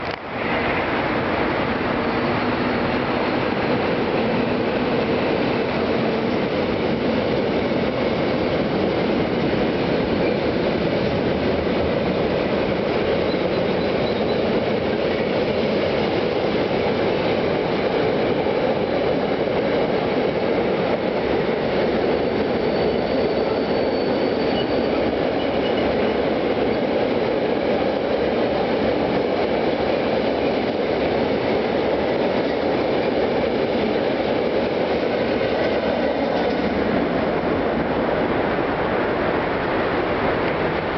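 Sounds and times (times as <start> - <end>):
freight train wheels clattering: 1.4 - 37.9
high wheel squeal: 1.8 - 3.3, 13.2 - 14.6, 22.0 - 26.8.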